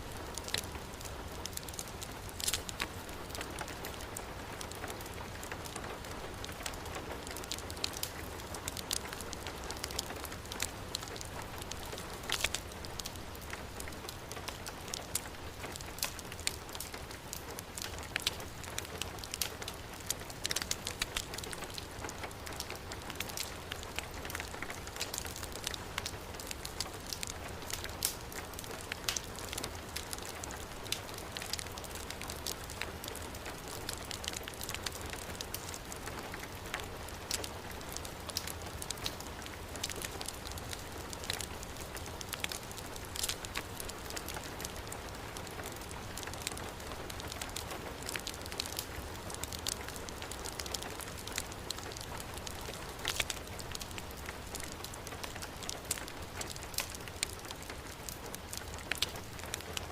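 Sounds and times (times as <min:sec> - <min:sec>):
heavy rain: 0:00.0 - 0:59.9
wood fire crackling: 0:00.0 - 0:59.9.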